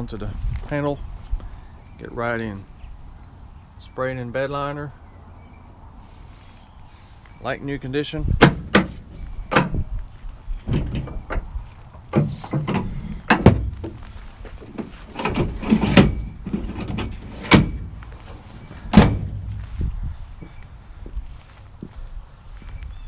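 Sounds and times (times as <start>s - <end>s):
pickup truck bed clunks: 8.4s - 9.9s, 10.6s - 19.7s.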